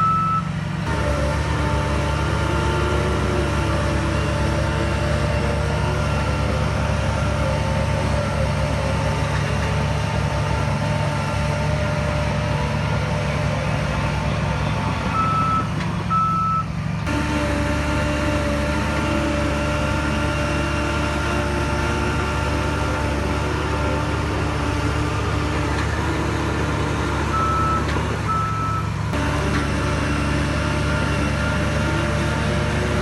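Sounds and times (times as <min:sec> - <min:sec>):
reversing alarm beeping: 0:00.0 - 0:00.5, 0:15.1 - 0:16.7, 0:27.3 - 0:28.9
heavy diesel machinery running: 0:00.0 - 0:33.0.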